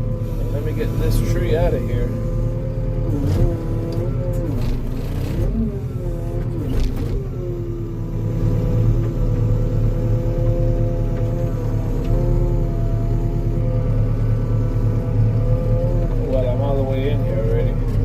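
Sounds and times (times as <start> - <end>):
machine engine straining: 3.0 - 7.6.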